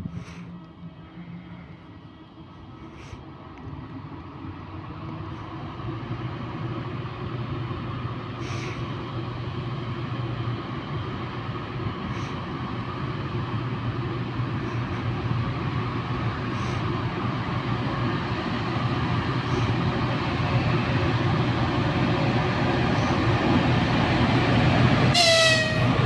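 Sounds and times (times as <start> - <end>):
electric locomotive and train hum: 0.0 - 26.0.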